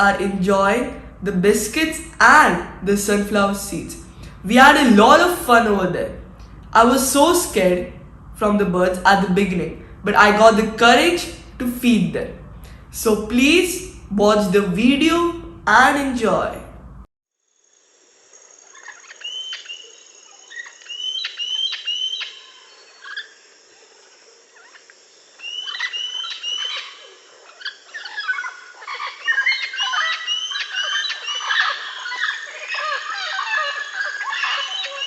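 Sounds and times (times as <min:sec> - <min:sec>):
parrots and birds chirping: 0:18.7 - 0:23.2, 0:25.4 - 0:35.0.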